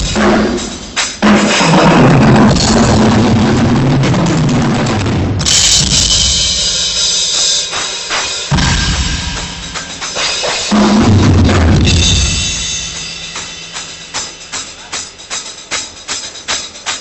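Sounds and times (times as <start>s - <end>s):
bass drum and tom hits: 0.0s - 7.0s, 8.5s - 15.1s
rock drum kit: 0.0s - 17.0s
cymbal crashes: 5.4s - 17.0s.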